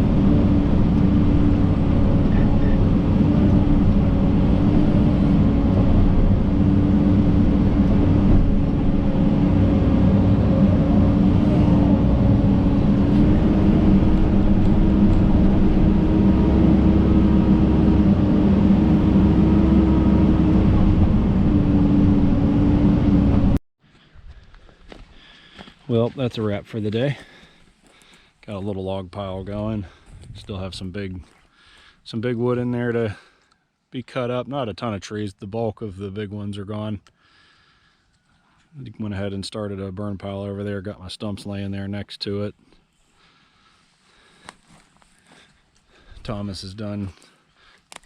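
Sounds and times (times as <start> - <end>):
excavator diesel engine droning: 0.0 - 23.6.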